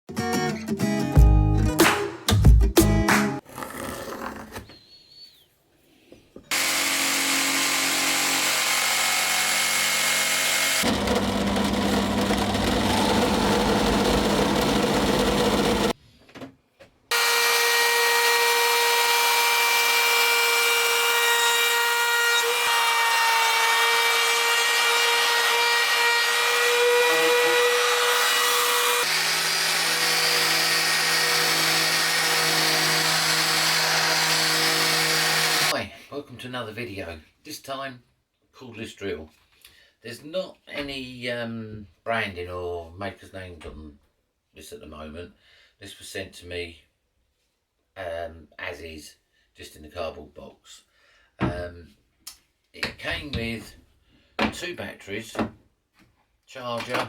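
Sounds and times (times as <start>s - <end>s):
power drill motor whining: 6.5s - 16.0s, 27.3s - 35.7s.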